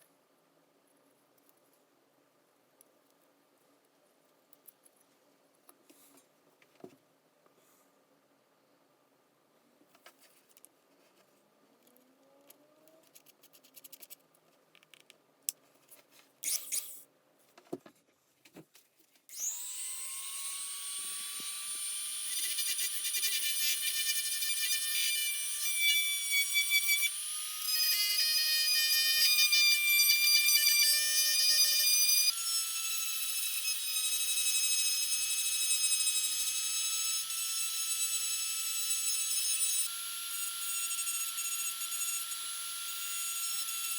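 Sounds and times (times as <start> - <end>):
small clicks and handling noises: 9.9 - 16.9
small power tool whining: 19.3 - 43.9.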